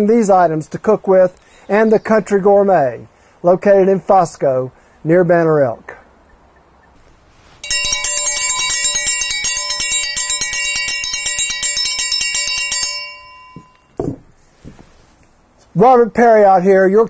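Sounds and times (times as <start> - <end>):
metal bell rung rapidly: 7.6 - 13.9.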